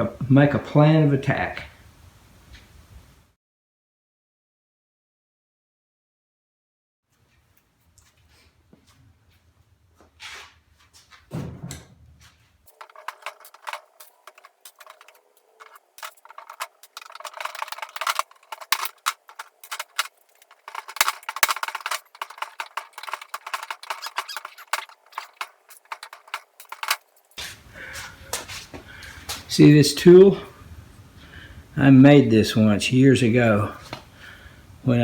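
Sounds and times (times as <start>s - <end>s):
scratching and scraping on wood: 12.7s - 27.6s.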